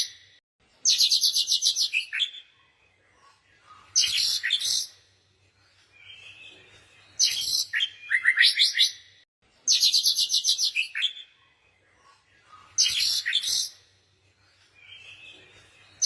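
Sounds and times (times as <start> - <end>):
birds chirping: 0.0 - 16.0
bird trill: 6.0 - 11.4.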